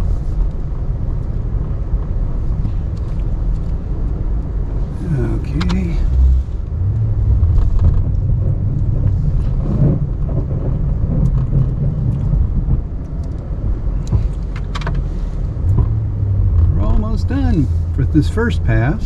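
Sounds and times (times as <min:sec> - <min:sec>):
pickup engine running: 0:00.0 - 0:19.0
plow pushing snow: 0:13.9 - 0:19.0.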